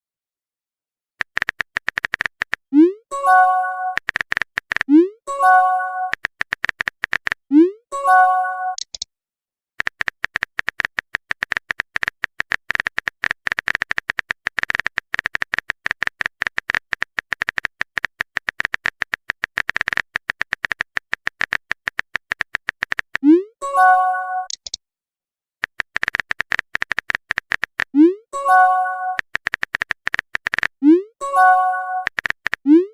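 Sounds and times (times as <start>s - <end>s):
phone keyboard typing clicks: 1.2s - 2.7s, 3.4s - 7.5s, 8.7s - 9.1s, 9.8s - 23.2s, 24.4s - 24.8s, 25.6s - 28.0s, 28.6s - 30.8s, 31.4s - 32.9s
message sent pop and chime: 2.8s - 4.0s, 4.9s - 6.2s, 7.5s - 8.8s, 23.2s - 24.6s, 28.4s - 29.2s, 31.2s - 32.2s.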